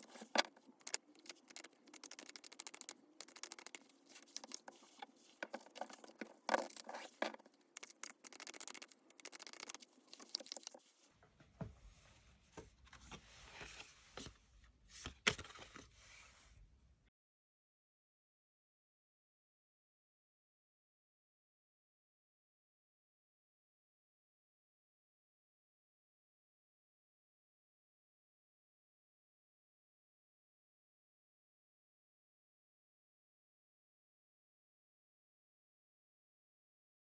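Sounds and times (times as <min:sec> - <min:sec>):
cards being shuffled: 0:00.0 - 0:10.8.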